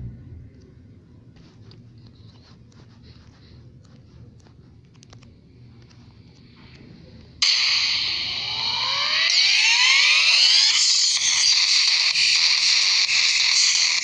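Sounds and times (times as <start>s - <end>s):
low hum: 0.0s - 13.1s
faint clicks and taps: 1.4s - 7.4s
loud high multi-tone sound: 7.4s - 14.0s.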